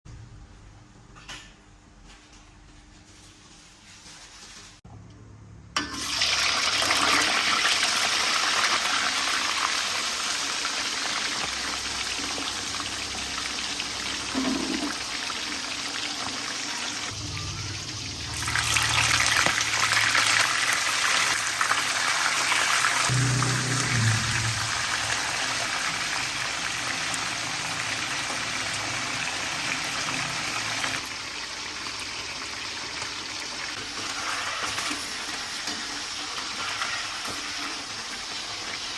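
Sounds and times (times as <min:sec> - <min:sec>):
water running from tap: 0:11.1 - 0:31.4.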